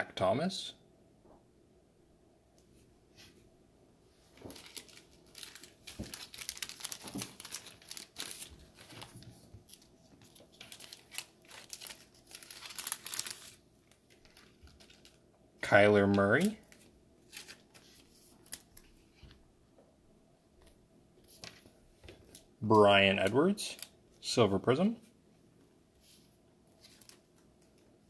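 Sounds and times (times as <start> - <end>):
plastic card sleeves crinkling: 4.3 - 15.2, 16.0 - 19.4, 26.1 - 28.0.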